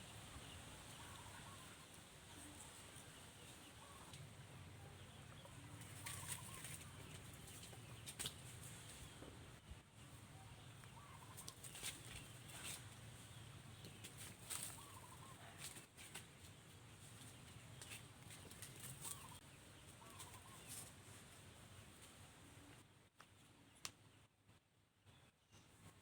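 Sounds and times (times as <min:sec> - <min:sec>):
faint animal chirps: 0:06.0 - 0:06.9, 0:14.8 - 0:15.6.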